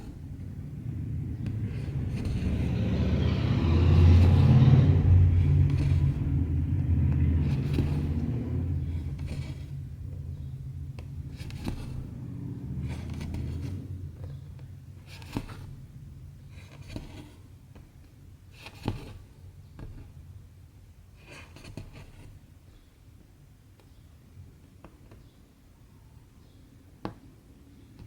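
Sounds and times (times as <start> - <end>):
needle scratching through fabric: 0.0 - 10.0, 11.1 - 15.9, 16.5 - 17.5, 21.2 - 22.4
low rumble: 0.0 - 14.9.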